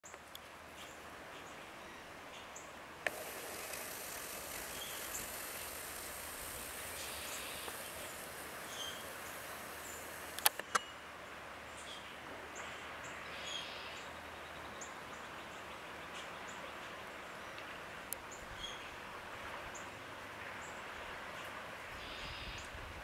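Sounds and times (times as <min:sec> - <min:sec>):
steady outdoor hiss: 0:00.0 - 0:23.0
small birds chirping: 0:00.8 - 0:10.8.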